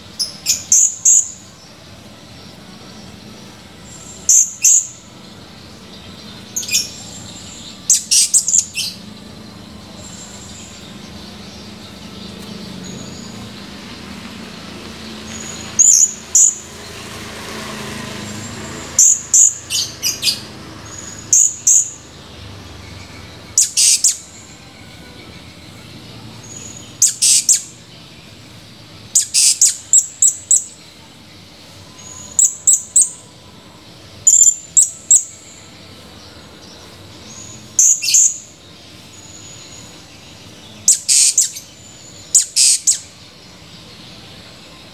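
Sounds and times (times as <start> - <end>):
parrot high-pitched chirps: 7.9 - 9.0, 21.0 - 22.0, 23.6 - 24.3, 27.0 - 27.7, 29.1 - 30.8, 32.1 - 33.2, 40.8 - 43.1.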